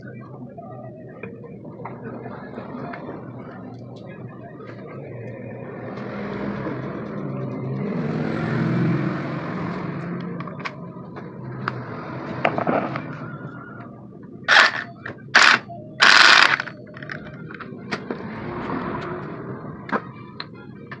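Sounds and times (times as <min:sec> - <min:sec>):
passing vehicle engine: 0:05.0 - 0:14.1, 0:16.1 - 0:21.0
tools clicking on metal: 0:14.5 - 0:17.2.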